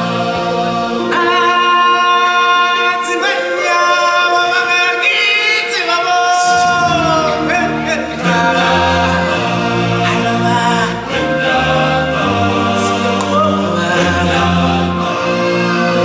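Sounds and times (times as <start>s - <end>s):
choir and accompaniment: 0.0s - 16.0s
high solo voice singing: 0.0s - 16.0s.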